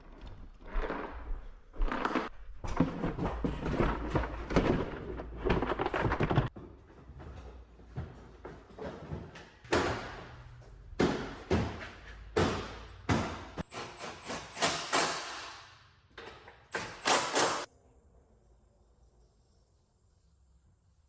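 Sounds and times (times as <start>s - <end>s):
sharp metal knocks and bangs: 11.0s - 15.8s.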